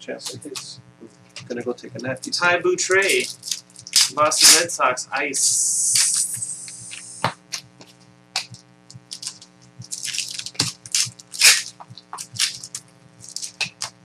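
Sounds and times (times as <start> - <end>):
faint steady hum: 0.0 - 14.0
wrappers crinkling and tearing: 1.1 - 4.7, 8.9 - 14.0
cards flipped by hand: 5.9 - 7.6.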